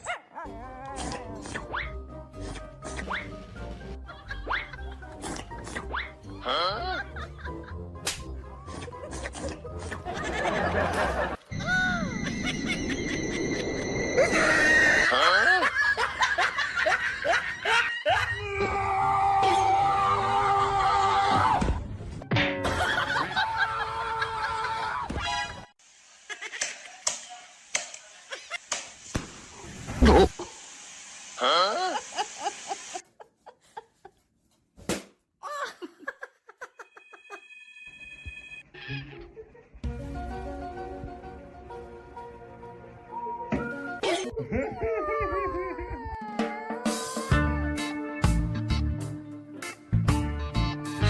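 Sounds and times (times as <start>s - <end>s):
background music: 0.1s - 24.2s, 39.8s - 45.0s, 46.2s - 51.0s
high-pitched squealing cries: 14.2s - 15.6s, 44.6s - 47.5s.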